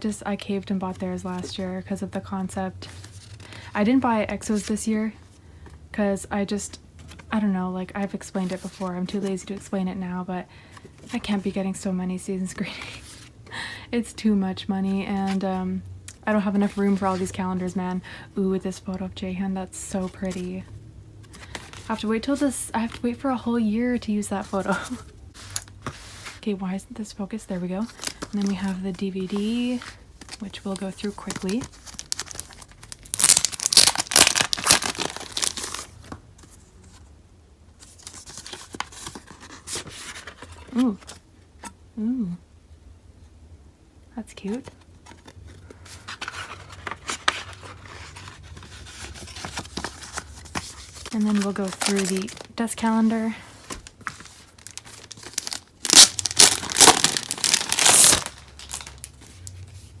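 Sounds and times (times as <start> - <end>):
plastic wrapping crinkling and tearing: 27.9 - 28.8, 29.4 - 36.1, 46.0 - 59.7.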